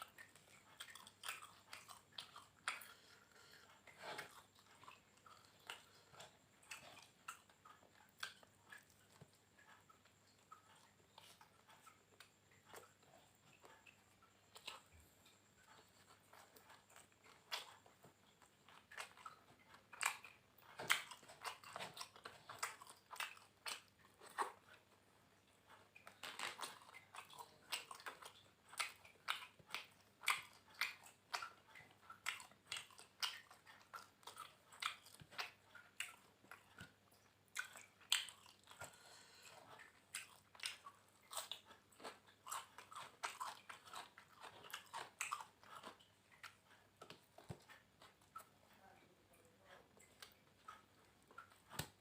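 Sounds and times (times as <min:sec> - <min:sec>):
person chewing crunchy food: 0:00.0 - 0:48.7, 0:49.7 - 0:52.0.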